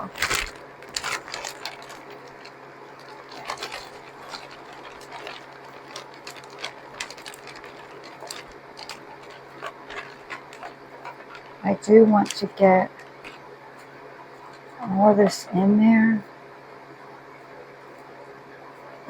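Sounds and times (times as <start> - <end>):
trays and containers clicking: 0.0 - 11.6
steady low hum: 0.0 - 19.0.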